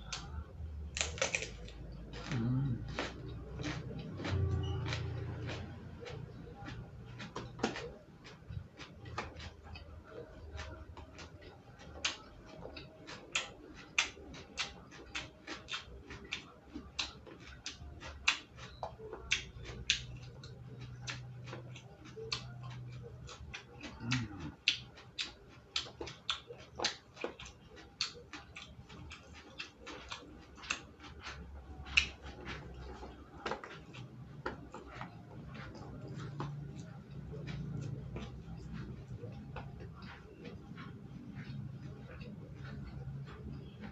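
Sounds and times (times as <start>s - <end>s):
person chewing and smacking: 0.0s - 43.9s.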